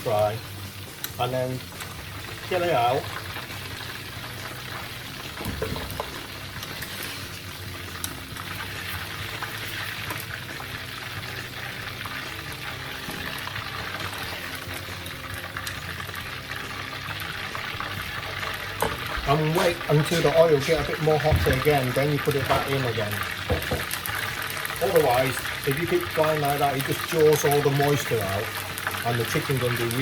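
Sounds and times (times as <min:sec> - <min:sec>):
chicken deep-frying in oil: 0:00.0 - 0:30.0
knock: 0:23.5 - 0:23.9.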